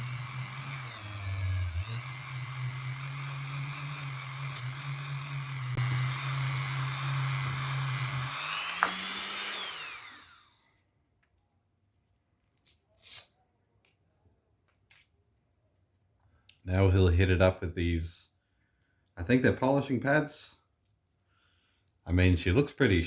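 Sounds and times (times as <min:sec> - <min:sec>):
rotary tool sanding: 0:00.0 - 0:10.8.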